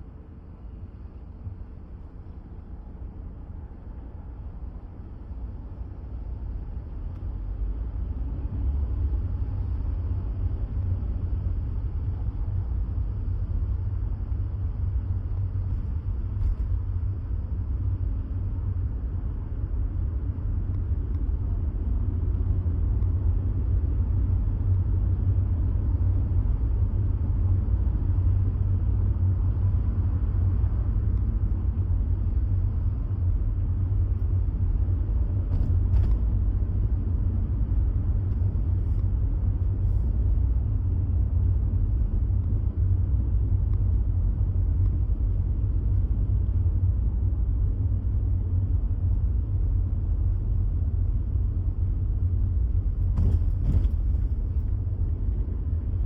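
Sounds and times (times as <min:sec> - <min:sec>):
vehicle rumbling on the move: 0:00.0 - 0:56.0.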